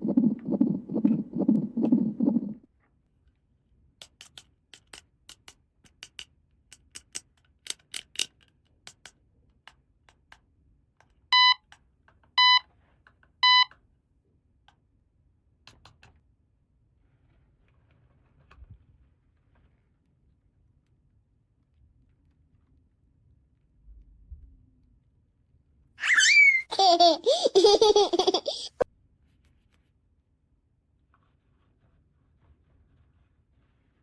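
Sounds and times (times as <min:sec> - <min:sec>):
rhythmic rubbing: 0:00.0 - 0:02.6
plastic toy pieces clicking: 0:04.0 - 0:09.2.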